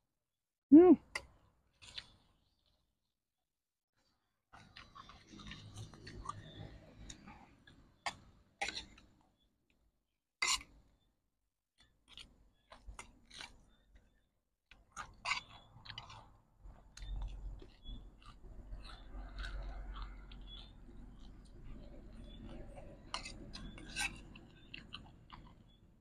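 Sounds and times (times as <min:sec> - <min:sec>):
person chewing crunchy food: 0:01.7 - 0:02.8, 0:04.5 - 0:09.1, 0:11.8 - 0:26.0.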